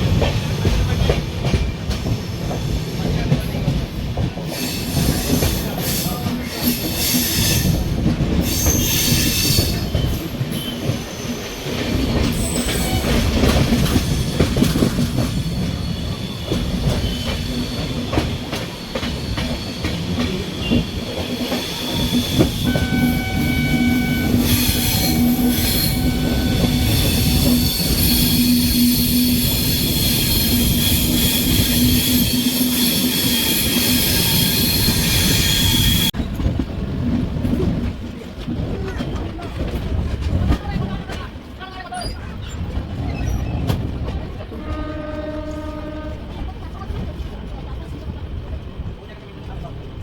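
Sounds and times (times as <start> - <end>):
train wheels clattering: 0.0 - 47.8
high-pitched wheel squeal: 21.6 - 36.1
train horn: 22.6 - 28.6, 44.5 - 46.3.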